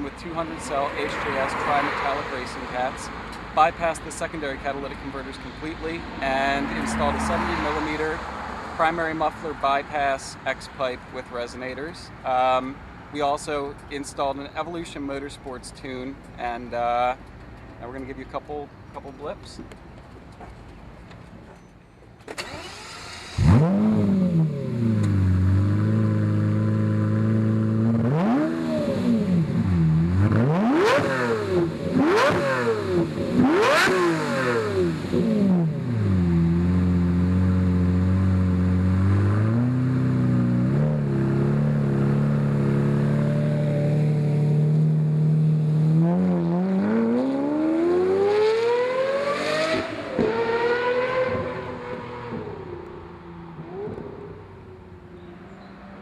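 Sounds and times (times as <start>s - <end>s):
car engine revving: 0.3s - 9.3s, 22.3s - 56.0s.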